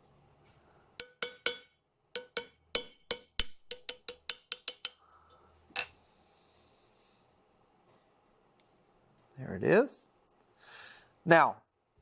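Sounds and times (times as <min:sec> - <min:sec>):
hammer tapping metal punch: 0:01.0 - 0:05.0
faint hiss: 0:05.4 - 0:08.0.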